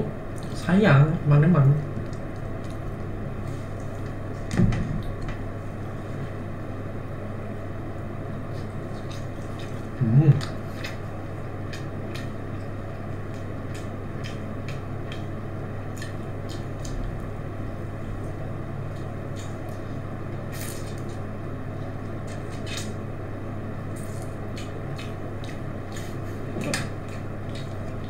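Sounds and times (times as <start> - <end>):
steady low hum: 0.0 - 28.0
person chewing food: 2.0 - 4.1, 8.4 - 17.4, 23.9 - 28.0.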